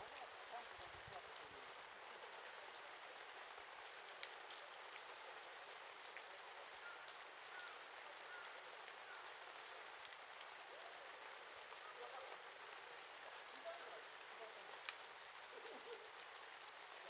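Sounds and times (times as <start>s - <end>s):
sharp pops and snaps: 0.0s - 10.7s
wood fire crackling: 0.0s - 17.0s.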